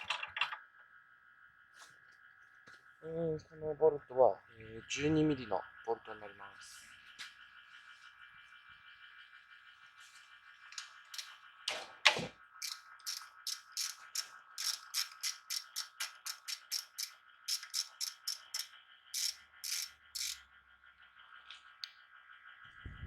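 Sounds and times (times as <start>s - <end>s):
ratchet wrench clicking: 10.8s - 11.4s, 12.6s - 20.4s.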